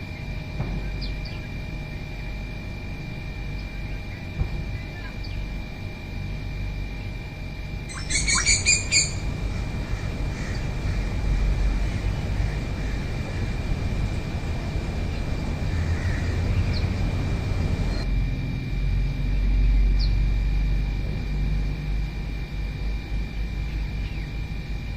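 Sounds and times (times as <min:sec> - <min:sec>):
bird chirping: 0:00.9 - 0:01.6, 0:07.9 - 0:09.3.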